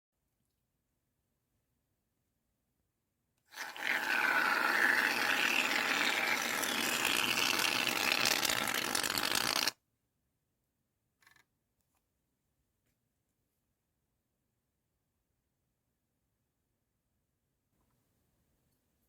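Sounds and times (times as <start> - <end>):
aerosol can spraying foam: 3.5 - 6.8.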